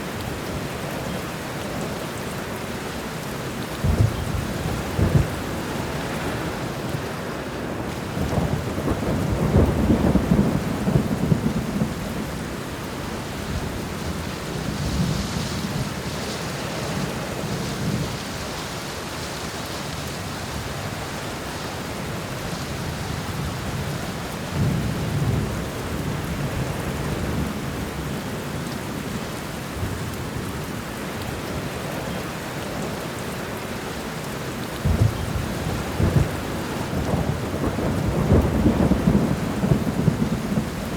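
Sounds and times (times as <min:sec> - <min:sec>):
steady rain: 0:00.0 - 0:40.9
rolling thunder: 0:03.8 - 0:06.7, 0:08.1 - 0:12.6, 0:34.8 - 0:40.9.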